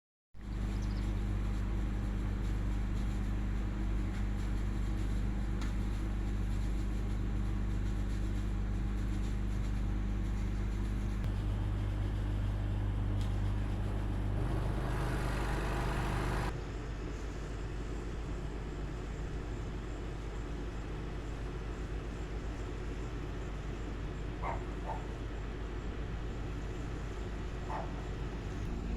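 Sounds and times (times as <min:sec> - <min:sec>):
vehicle engine humming: 0:00.4 - 0:16.6, 0:26.2 - 0:28.9.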